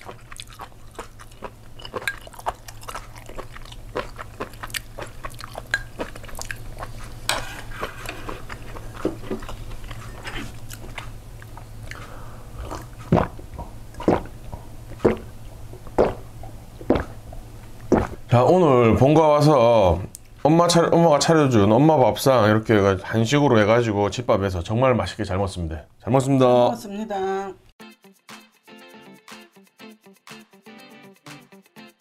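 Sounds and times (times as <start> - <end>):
chewing and crunching: 0.0 - 18.2.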